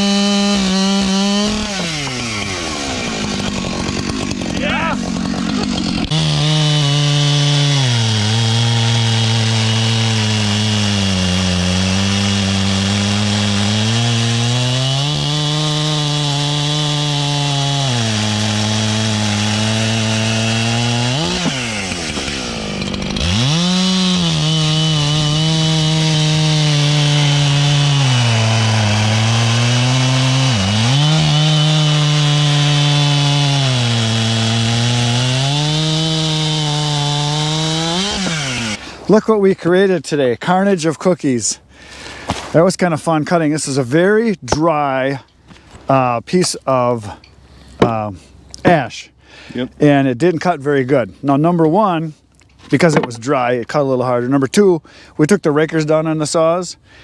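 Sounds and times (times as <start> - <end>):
chainsaw cutting wood: 0.0 - 39.2, 41.8 - 42.6, 51.6 - 53.3.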